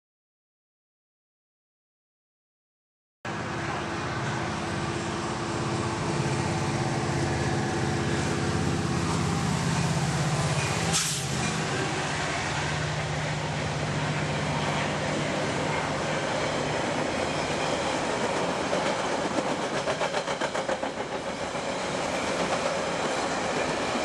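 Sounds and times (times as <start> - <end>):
diesel locomotive engine drone: 3.3 - 24.0
short sharp hiss: 10.6 - 11.6.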